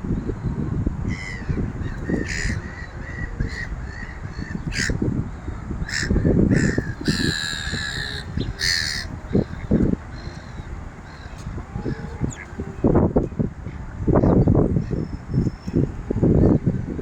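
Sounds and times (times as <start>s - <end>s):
steady low rumble: 0.0s - 17.0s
birds calling: 1.1s - 13.0s.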